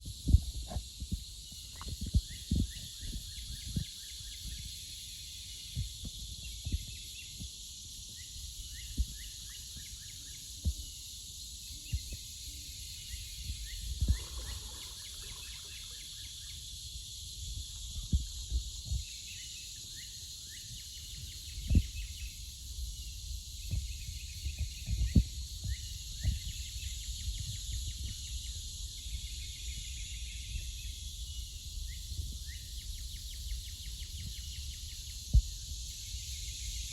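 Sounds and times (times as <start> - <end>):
cicadas buzzing: 0.0 - 36.9
dull low thumps: 17.5 - 19.1.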